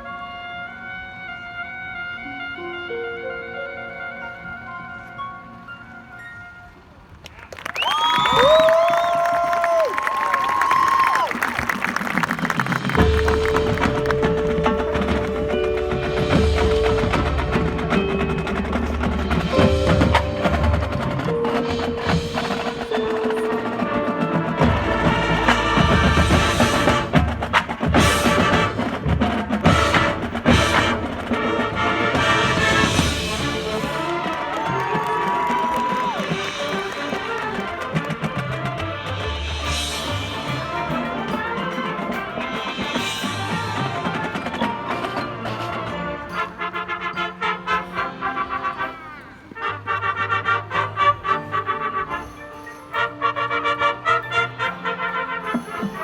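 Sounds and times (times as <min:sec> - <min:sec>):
marching band winds holding chords: 0:00.0 - 0:56.0
sharp percussion strikes: 0:12.7 - 0:35.2.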